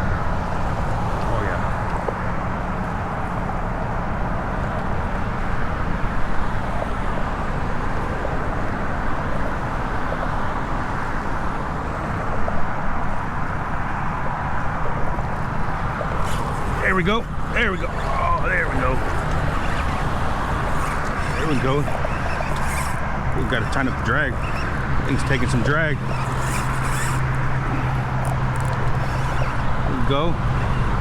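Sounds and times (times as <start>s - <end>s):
road traffic rumble: 0.0s - 31.0s.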